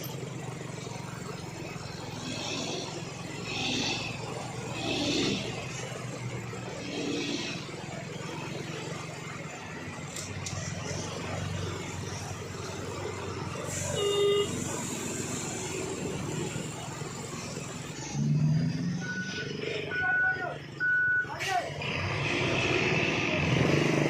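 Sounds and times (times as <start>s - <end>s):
heavy truck engine running: 0.0s - 24.0s
truck horn toot: 13.7s - 14.8s.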